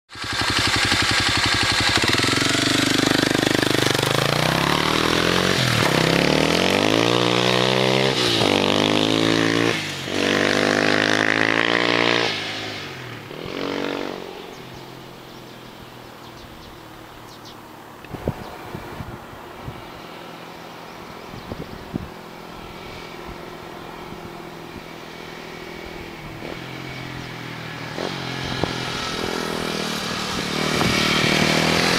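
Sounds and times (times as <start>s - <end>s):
motorcycle accelerating through gears: 0.1s - 31.9s.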